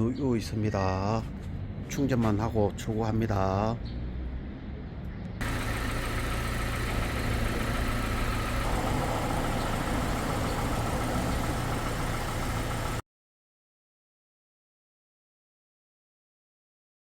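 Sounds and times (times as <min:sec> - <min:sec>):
air conditioning running: 0:05.4 - 0:13.0
car engine idling: 0:05.4 - 0:13.0.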